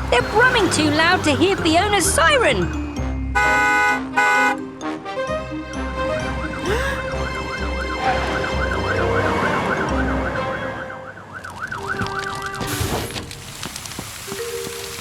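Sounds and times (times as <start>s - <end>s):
truck engines brumming: 0.0s - 15.0s
cartoon siren wailing: 6.6s - 12.6s.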